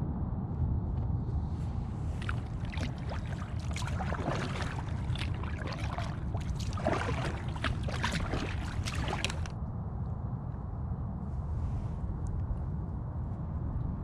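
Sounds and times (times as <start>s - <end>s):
steady low rumble: 0.0s - 14.0s
paddle splashing and dripping: 2.1s - 9.5s.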